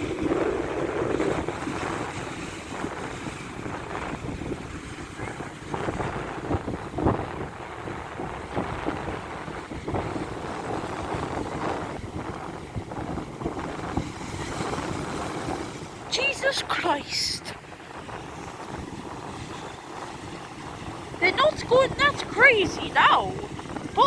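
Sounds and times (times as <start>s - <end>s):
big waves breaking: 0.0s - 24.0s
wind buffeting microphone: 0.0s - 24.0s.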